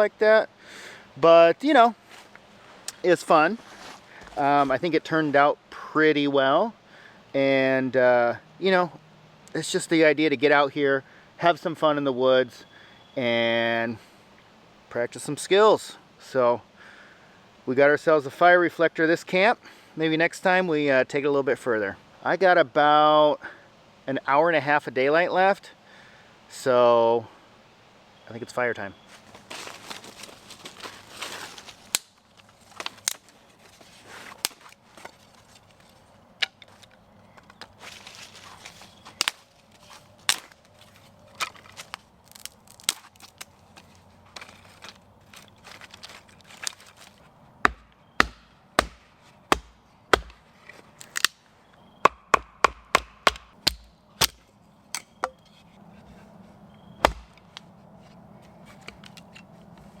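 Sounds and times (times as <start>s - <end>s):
firewood being chopped: 29.3s - 33.3s, 34.2s - 35.2s, 37.4s - 51.4s, 52.0s - 55.5s, 57.0s - 57.7s.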